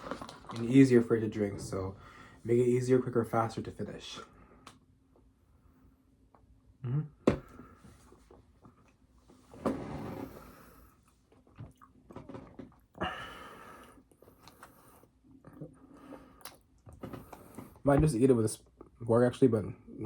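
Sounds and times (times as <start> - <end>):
chewing and mouth noises: 11.0 - 12.8, 14.2 - 17.6.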